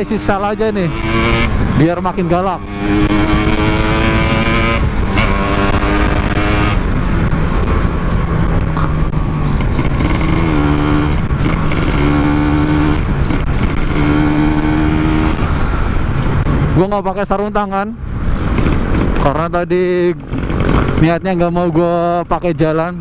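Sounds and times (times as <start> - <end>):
two-stroke motorcycle engine revving: 0.0 - 16.7, 18.4 - 22.2.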